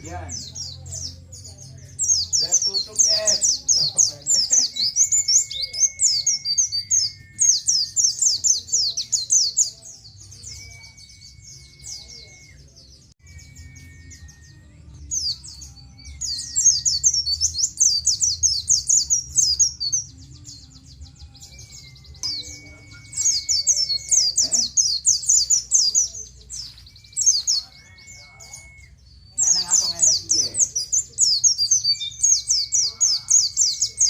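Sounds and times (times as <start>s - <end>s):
bird rapid high chirping: 0.0s - 34.0s.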